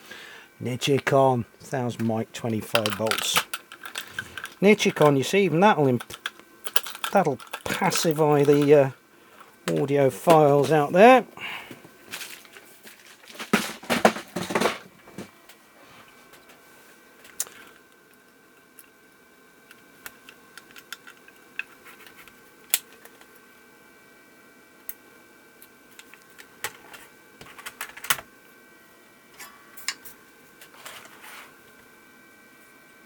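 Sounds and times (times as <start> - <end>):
faint high hum: 0.0 - 33.0
hand tools clicking and tapping: 6.0 - 8.7.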